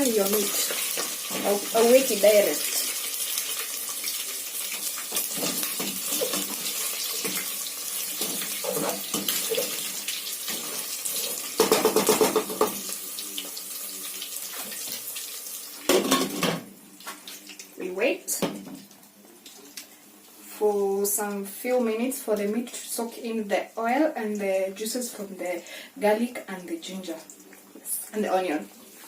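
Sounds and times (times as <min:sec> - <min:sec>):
louder sizzle bursts: 0:00.0 - 0:11.6
meat sizzling in hot oil: 0:00.0 - 0:16.0.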